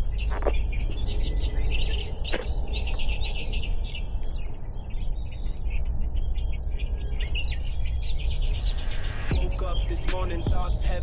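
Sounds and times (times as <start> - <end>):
low rumble: 0.0 - 11.0
small birds chirping: 0.0 - 11.0.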